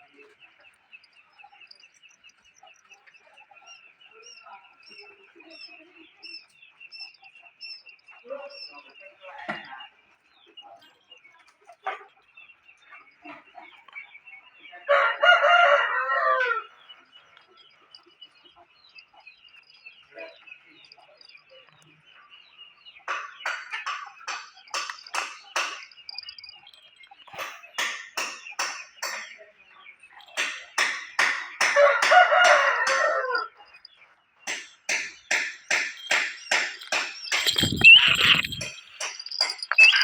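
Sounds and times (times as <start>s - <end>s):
poultry calling: 36.0s - 40.0s.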